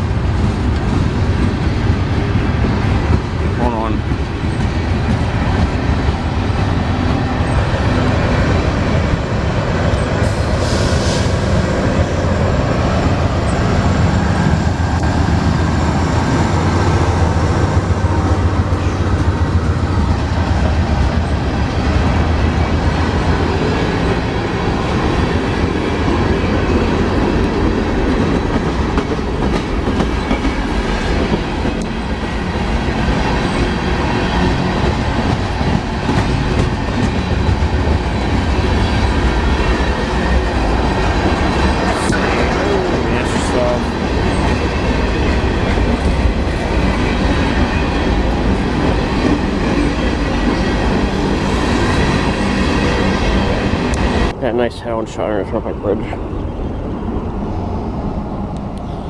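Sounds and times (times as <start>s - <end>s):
steel wheels clattering on rails: 0.0s - 7.7s, 25.2s - 54.3s
diesel locomotive engine drone: 0.0s - 59.0s.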